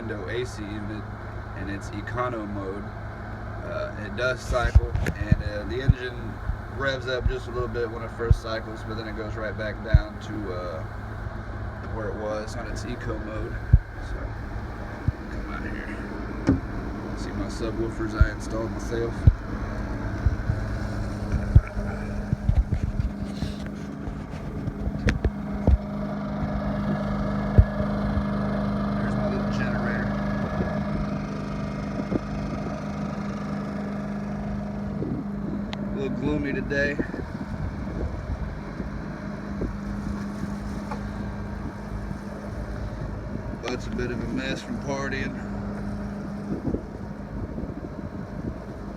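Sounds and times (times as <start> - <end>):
generator humming: 0.0 - 48.9
wind buffeting microphone: 0.0 - 48.9
low thumps: 4.4 - 26.9.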